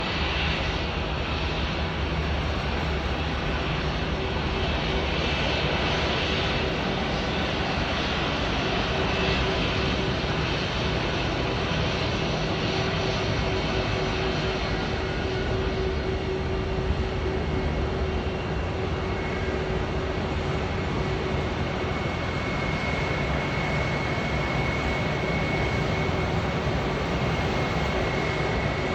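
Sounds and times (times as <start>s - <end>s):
jet engines running: 0.0s - 28.9s.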